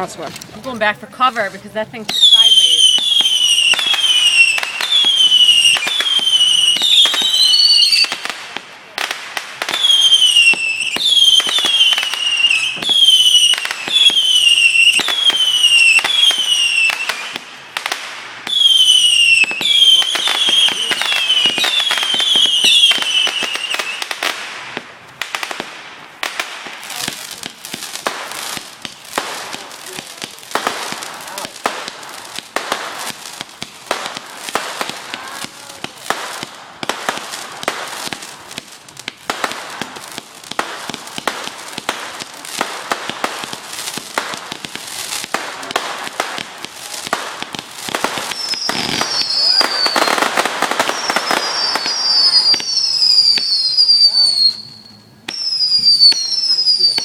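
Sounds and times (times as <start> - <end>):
sharp firework cracks: 2.1 - 57.0
whistling firework shots: 2.1 - 57.0
dense crackle of small bangs: 2.2 - 52.7.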